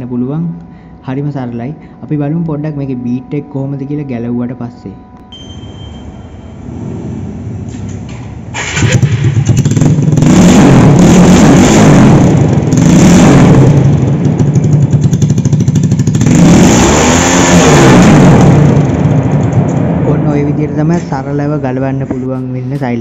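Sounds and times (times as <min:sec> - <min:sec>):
motorcycle engine revving: 0:05.6 - 0:22.9.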